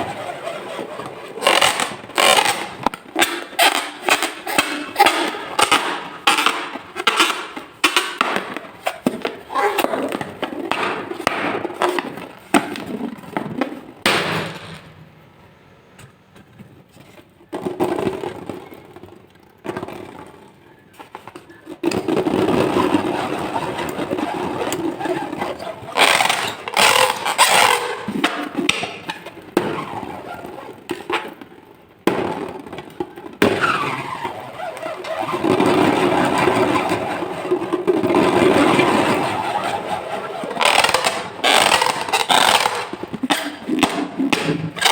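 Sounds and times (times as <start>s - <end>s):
balloons and slime crackling: 0.0s - 44.9s.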